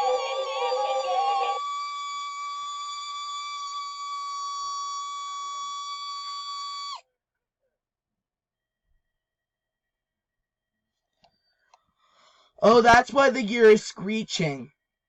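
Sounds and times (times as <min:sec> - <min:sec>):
toy dog synthetic song: 0:00.0 - 0:02.1.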